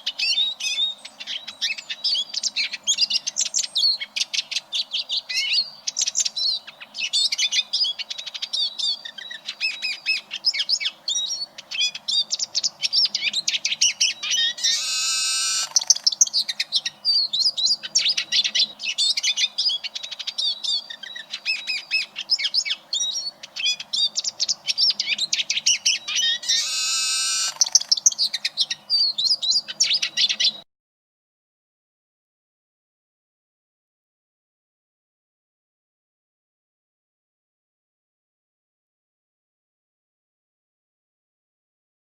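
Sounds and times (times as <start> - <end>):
siskin twittering song: 0.0 - 30.6
bird buzzy wheeze: 14.6 - 16.0, 26.4 - 27.8.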